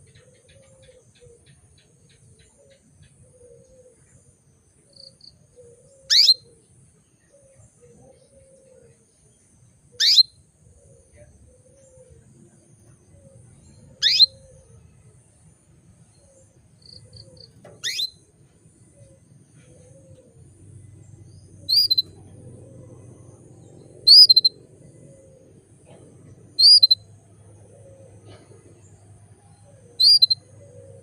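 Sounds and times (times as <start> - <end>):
canary chirping: 6.1 - 6.4, 10.0 - 10.3, 13.8 - 14.5, 16.9 - 18.3, 20.9 - 24.7, 26.5 - 27.1, 29.9 - 30.6.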